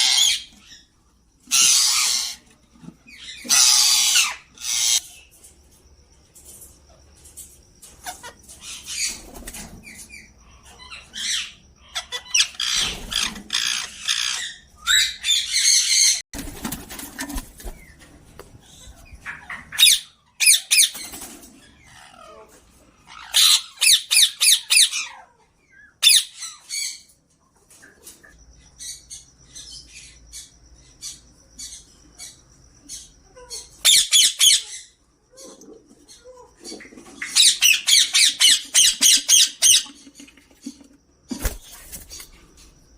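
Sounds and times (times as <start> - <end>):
parakeets squawking: 0.0 - 5.2, 10.6 - 16.2, 19.0 - 21.1, 21.7 - 25.3, 32.9 - 35.0, 36.2 - 40.4.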